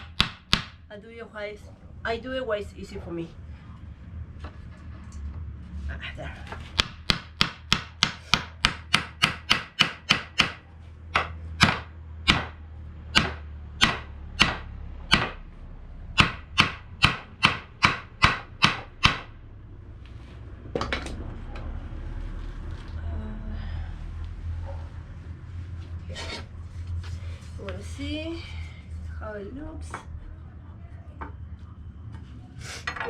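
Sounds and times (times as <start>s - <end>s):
hammer striking nail into wood: 0.0s - 0.8s, 6.7s - 15.4s, 16.2s - 19.4s.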